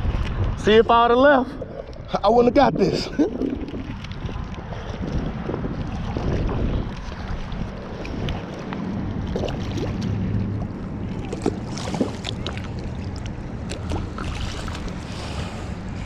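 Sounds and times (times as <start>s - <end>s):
wind noise on microphone: 0.0s - 12.1s
low motor drone: 1.5s - 16.0s.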